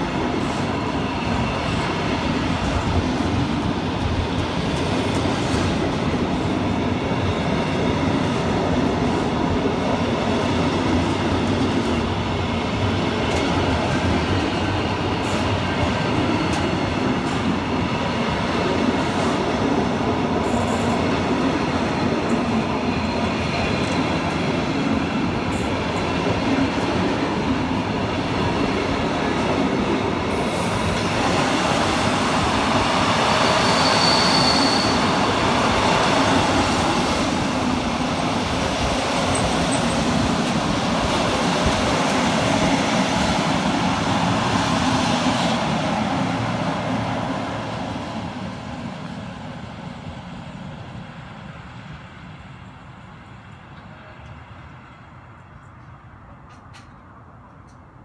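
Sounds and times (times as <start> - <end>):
freight train wheels rumbling: 0.0 - 58.0
high-pitched wheel squeal: 33.2 - 35.2.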